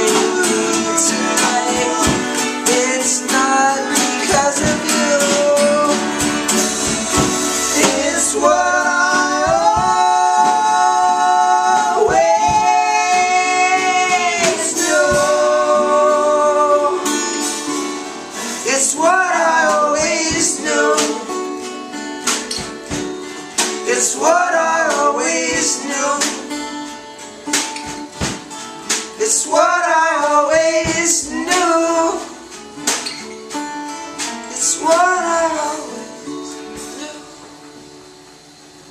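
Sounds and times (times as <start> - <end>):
person singing: 0.0 - 21.5, 23.8 - 26.6, 29.2 - 32.5, 34.2 - 37.5
strummed guitar: 0.0 - 38.9.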